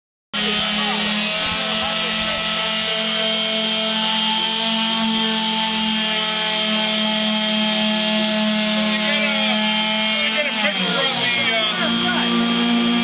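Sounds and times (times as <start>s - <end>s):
power sanders whining: 0.4s - 13.0s.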